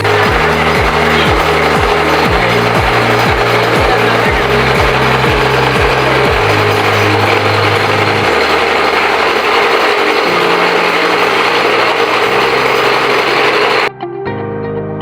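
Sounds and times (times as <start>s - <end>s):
pellet mill mechanical clatter: 0.0s - 13.9s
small engine hum: 0.0s - 13.9s.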